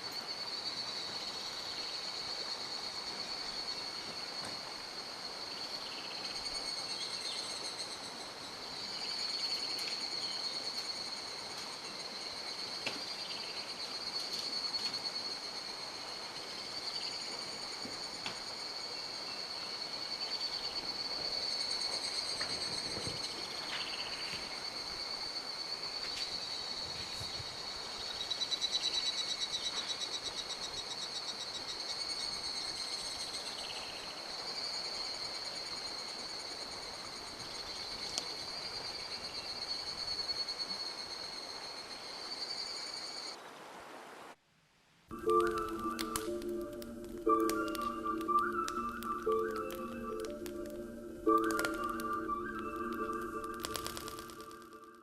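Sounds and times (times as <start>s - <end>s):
insects trilling: 0.0s - 43.7s, 45.1s - 55.0s
mountain stream rushing: 45.2s - 55.0s
short chirps: 45.2s - 55.0s.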